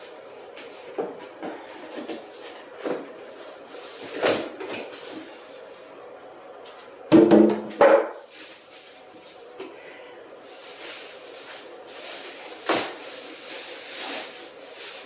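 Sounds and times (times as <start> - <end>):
cardboard rustling scrape: 10.5 - 15.0.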